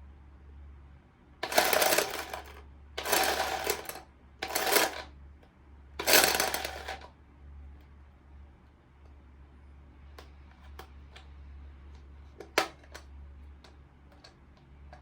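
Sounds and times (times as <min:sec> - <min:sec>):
rattling scraping handling noise: 0:01.4 - 0:05.0, 0:06.0 - 0:07.1.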